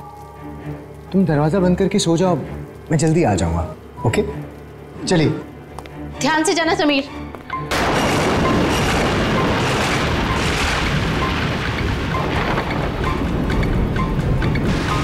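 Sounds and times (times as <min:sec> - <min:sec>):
heavy rain: 0:07.7 - 0:15.0
rolling thunder: 0:07.7 - 0:15.0.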